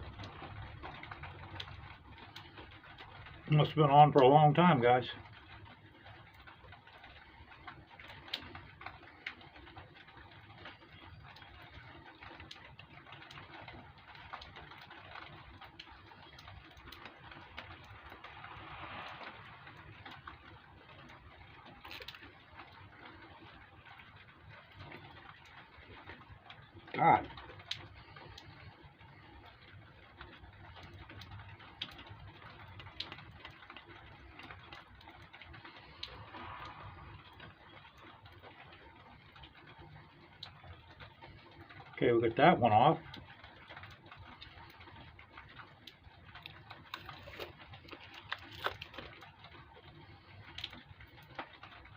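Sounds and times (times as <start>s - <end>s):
plastic film crinkling and peeling: 43.4s - 51.9s.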